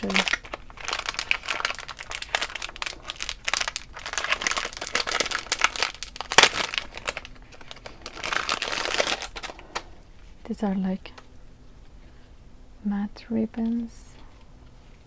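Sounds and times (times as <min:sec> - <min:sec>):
packaging crinkling and rustling: 0:00.0 - 0:10.3.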